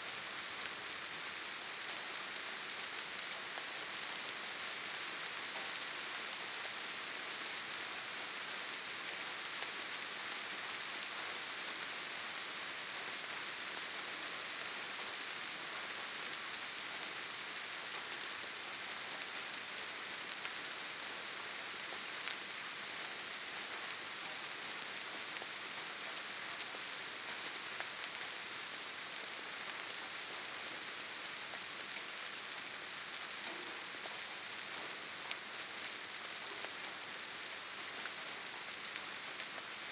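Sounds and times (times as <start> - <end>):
steady rainfall: 0.0 - 39.9
rain drops ticking: 21.8 - 39.9.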